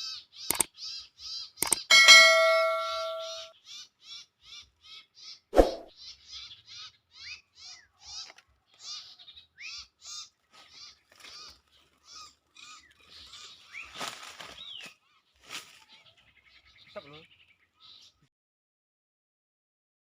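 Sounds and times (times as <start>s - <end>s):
songbird chirping: 0.0s - 18.3s
sharp clicks: 1.6s - 1.9s.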